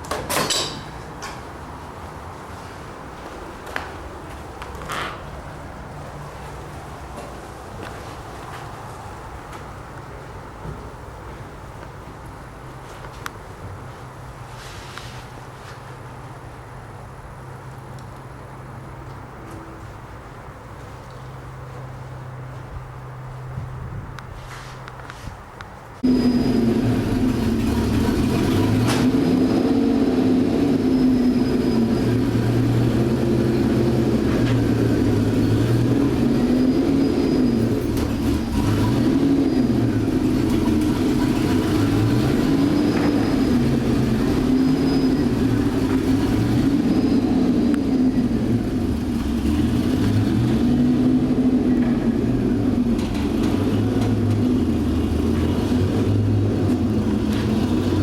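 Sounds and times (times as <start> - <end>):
wind and road noise: 0.0 - 58.0
car engine revving: 26.0 - 58.0.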